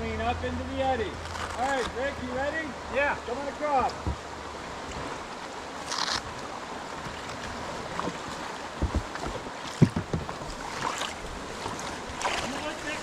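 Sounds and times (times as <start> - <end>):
river water running: 0.0 - 13.0
water splash: 3.7 - 13.0
dull knocks: 8.0 - 10.6.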